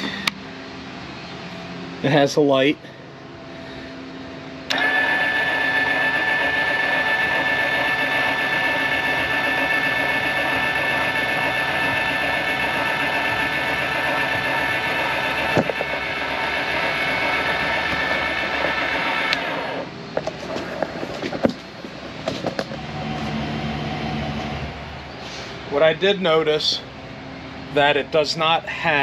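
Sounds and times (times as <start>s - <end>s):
electric motor whining: 4.7s - 19.9s, 22.5s - 24.9s.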